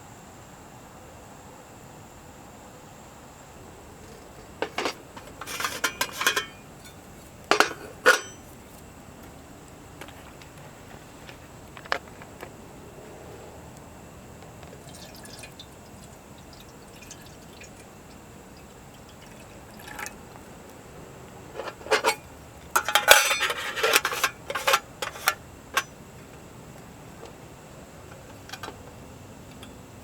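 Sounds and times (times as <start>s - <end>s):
small clinks and knocks: 4.0s - 8.8s, 21.6s - 26.0s, 28.1s - 29.8s
liquid dripping: 14.7s - 20.3s.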